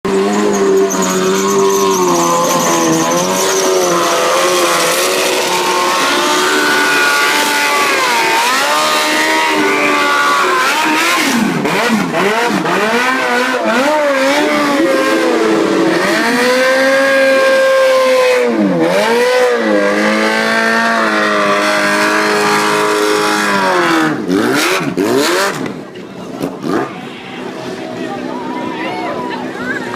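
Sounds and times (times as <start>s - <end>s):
motorcycle engine revving: 0.0s - 27.0s
tyre squealing: 0.1s - 11.4s.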